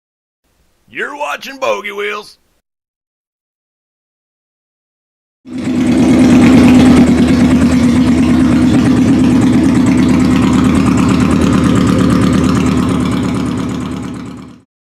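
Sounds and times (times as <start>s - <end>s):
motorcycle engine idling: 5.5s - 14.6s.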